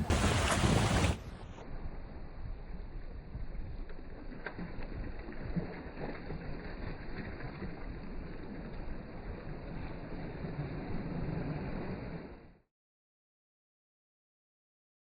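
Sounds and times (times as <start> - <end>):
loud burst of rushing noise: 0.0 - 1.5
boat running on open water: 0.0 - 12.6
low rumble of wind: 0.0 - 12.6.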